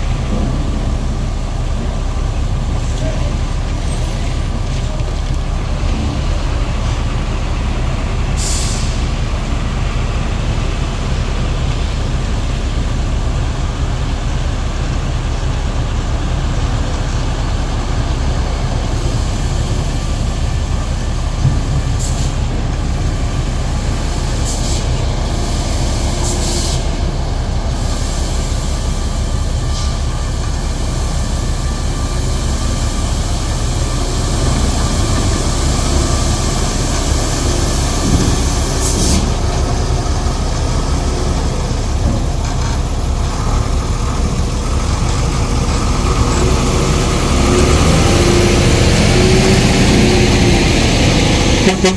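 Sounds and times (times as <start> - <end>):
diesel trucks rumbling: 0.0 - 51.9
air brakes hissing: 8.3 - 9.3, 18.7 - 51.9.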